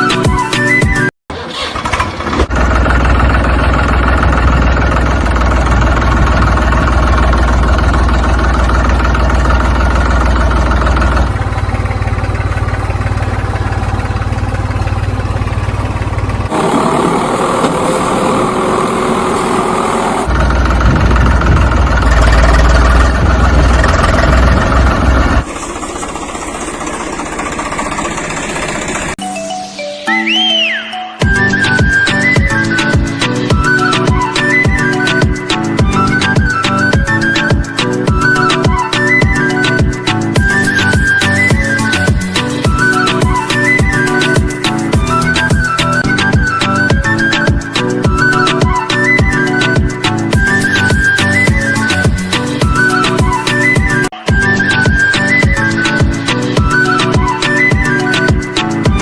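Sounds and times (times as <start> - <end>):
engine running with low hum: 1.6 - 29.2, 31.6 - 59.0.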